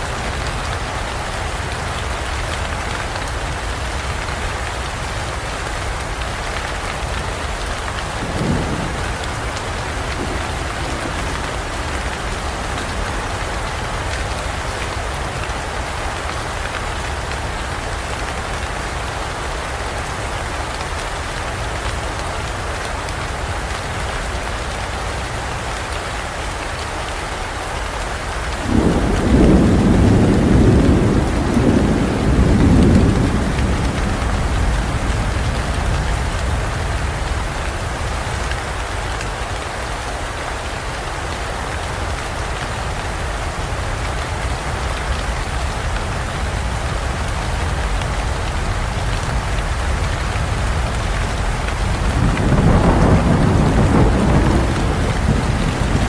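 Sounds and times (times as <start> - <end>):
heavy rain falling: 0.0 - 56.0
thunder rolling: 7.7 - 15.3, 28.6 - 38.1, 46.5 - 56.0.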